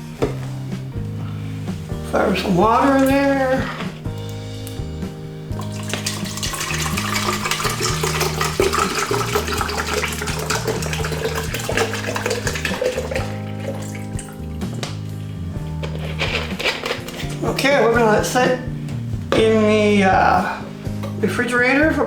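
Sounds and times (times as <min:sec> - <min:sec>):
background music: 0:00.0 - 0:22.0
water pouring into container: 0:05.5 - 0:15.0.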